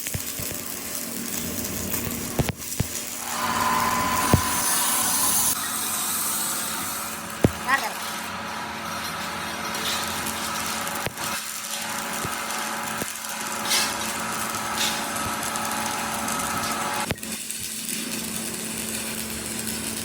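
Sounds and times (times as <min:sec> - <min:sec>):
bursts of hiss: 0:01.7 - 0:08.4
power tool humming: 0:01.9 - 0:09.0, 0:10.3 - 0:17.1.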